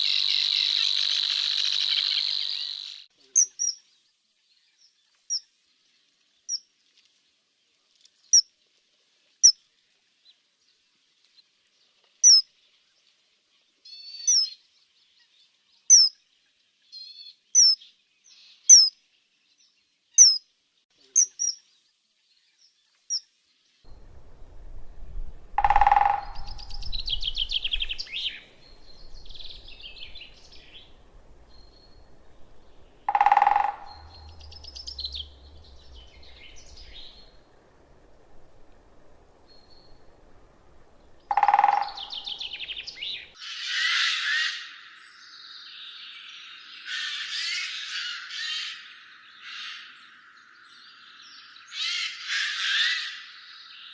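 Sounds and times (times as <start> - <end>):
birds twittering: 0.0 - 4.0, 25.5 - 53.9
songbird chirping: 0.0 - 53.9
low bird calls: 23.9 - 45.6.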